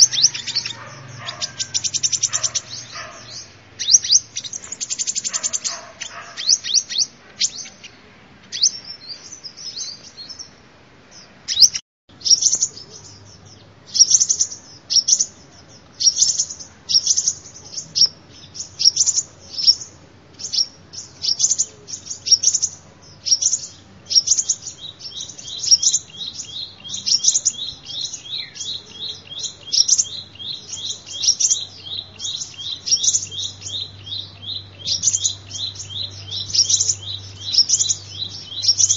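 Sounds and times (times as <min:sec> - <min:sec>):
high sharp bird chirps: 0:00.0 - 0:07.8, 0:16.0 - 0:38.9
low bird trill: 0:00.0 - 0:07.9, 0:11.5 - 0:38.9.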